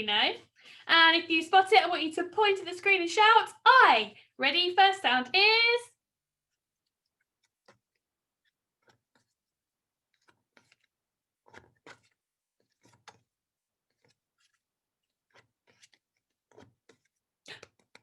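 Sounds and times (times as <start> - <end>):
cards being flipped: 10.2 - 13.2, 15.3 - 18.0.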